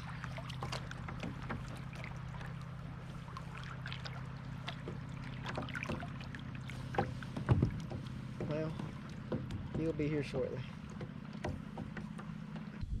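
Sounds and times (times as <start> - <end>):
small splashes and knocks: 0.0 - 12.8
steady low hum: 0.0 - 13.0.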